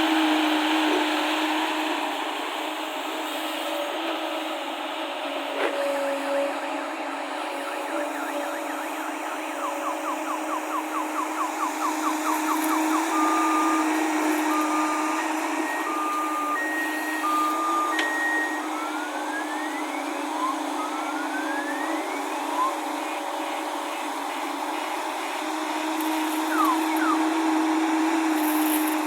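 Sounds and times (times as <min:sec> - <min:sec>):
diesel engine droning: 0:00.0 - 0:29.0
electronic reversing alarm: 0:05.8 - 0:29.0.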